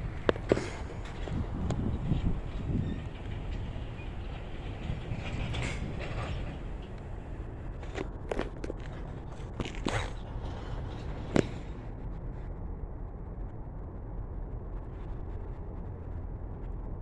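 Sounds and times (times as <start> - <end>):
freight train rumbling past: 0.0 - 12.0
train clanks and creaks: 0.0 - 12.0.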